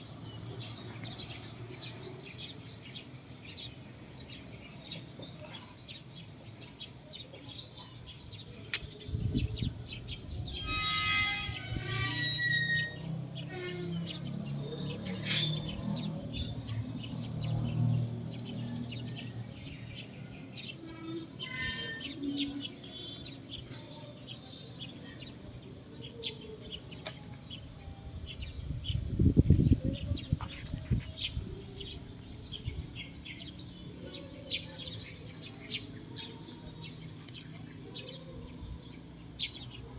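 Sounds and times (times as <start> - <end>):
birds chirping: 0.0 - 39.9
fuller bird call: 8.7 - 16.5.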